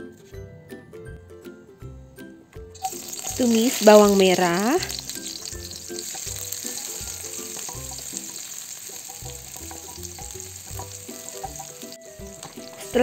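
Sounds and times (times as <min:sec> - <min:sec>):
soft background music: 0:00.0 - 0:13.0
shallots sizzling in hot oil: 0:02.8 - 0:13.0
wooden spatula stirring in wok: 0:02.8 - 0:13.0.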